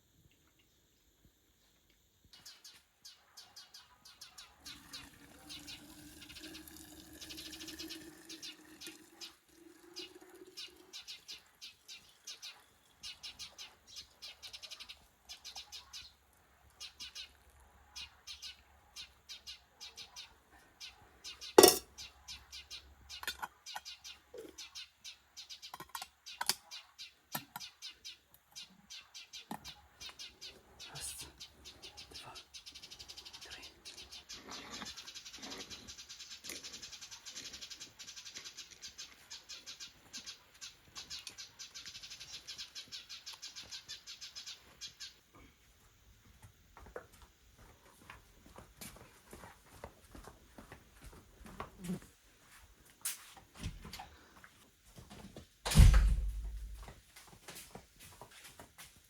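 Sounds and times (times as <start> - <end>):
small birds chirping: 0.1 - 46.2
sharp loud knock: 55.7 - 56.8.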